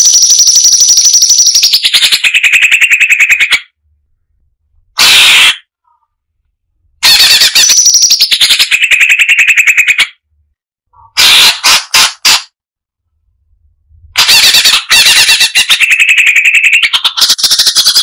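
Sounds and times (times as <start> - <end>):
bulbul harsh calls: 11.0 - 12.4.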